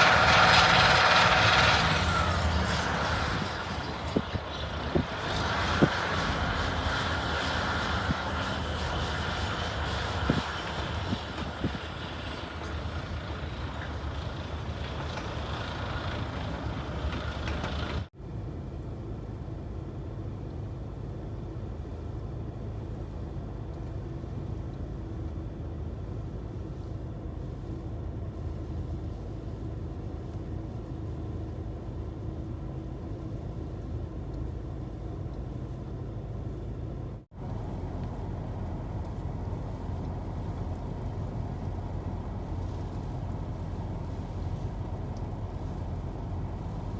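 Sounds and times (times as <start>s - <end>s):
motor vehicle running: 0.0s - 18.1s, 37.3s - 46.9s.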